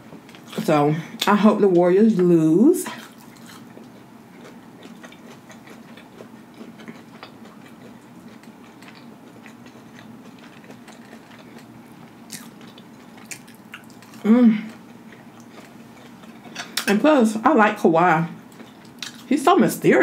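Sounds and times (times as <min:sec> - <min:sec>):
chewing fried fish: 0:02.2 - 0:16.9, 0:18.4 - 0:19.4.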